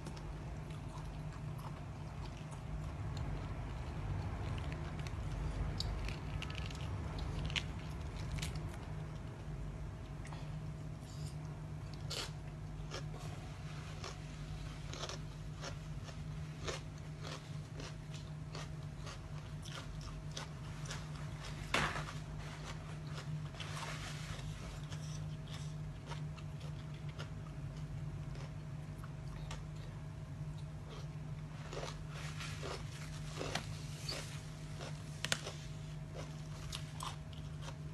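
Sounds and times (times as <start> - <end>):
chewing: 0.0 - 9.3, 11.1 - 21.6, 22.6 - 37.9
person crunching crisp food: 0.1 - 9.3, 11.9 - 21.7, 30.6 - 37.9.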